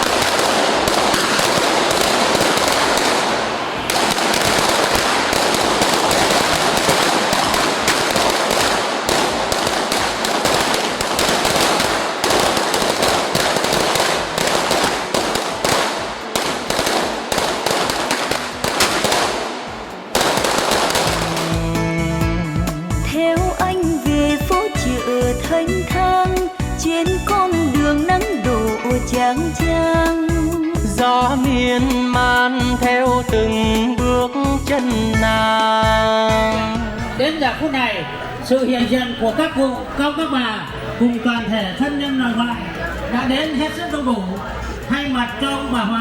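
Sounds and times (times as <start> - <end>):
firecrackers crackling: 0.0 - 22.1
music with singing: 21.0 - 37.2.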